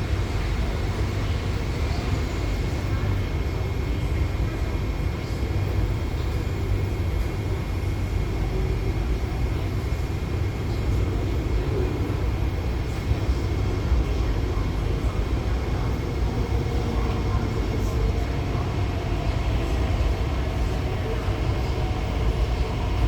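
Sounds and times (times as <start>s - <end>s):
train interior rumble and hum: 0.0s - 23.0s.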